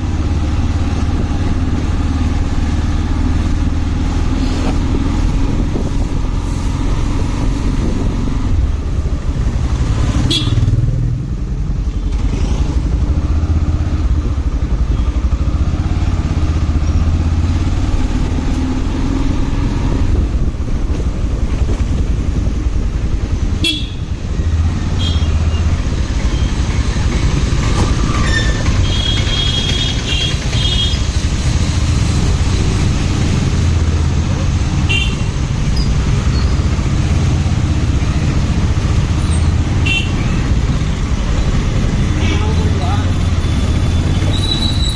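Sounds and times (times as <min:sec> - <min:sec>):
motorcycle engine and road rumble: 0:00.0 - 0:44.9.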